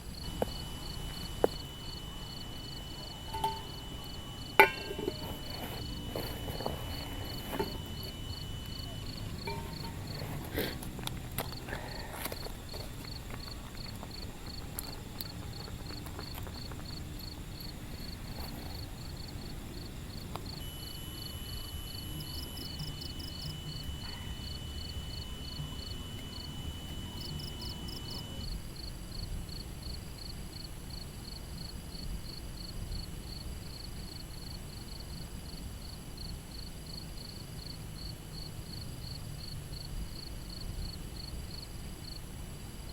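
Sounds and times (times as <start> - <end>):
insect high trill: 0.0 - 15.7, 16.6 - 29.6
insect chirping: 0.0 - 42.9.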